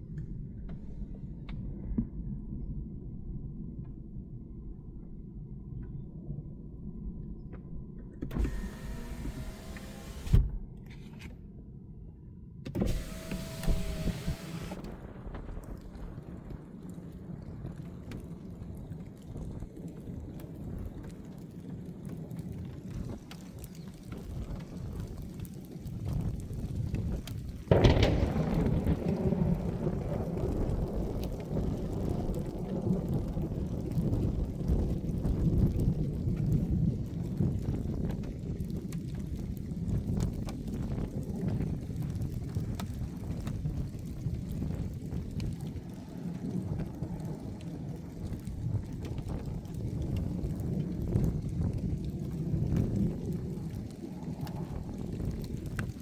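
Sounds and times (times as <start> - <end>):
low steady rumbling: 0.0 - 11.0, 11.8 - 19.0
raindrops ticking: 12.8 - 56.0
thunder crack: 12.9 - 17.8, 27.7 - 34.3
rolling thunder rumble: 13.0 - 23.3, 24.4 - 56.0.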